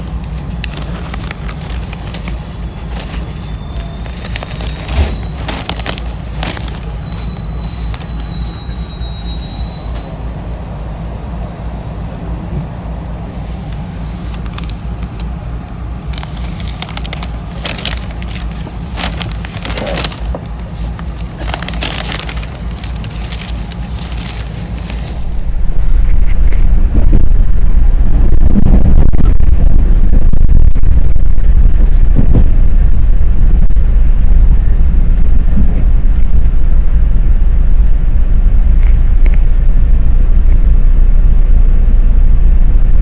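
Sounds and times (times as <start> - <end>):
train rumbling: 0.0 - 43.0
thin high whine: 2.5 - 12.1.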